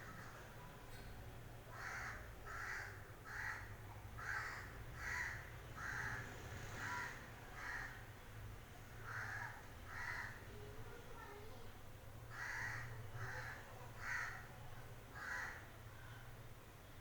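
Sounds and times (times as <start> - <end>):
crow cawing: 1.7 - 6.2, 6.8 - 8.0, 9.0 - 10.4, 12.3 - 14.5, 15.2 - 15.7.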